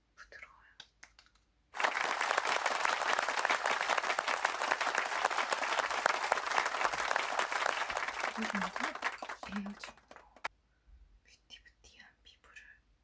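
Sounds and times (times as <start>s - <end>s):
applause: 1.2s - 10.5s.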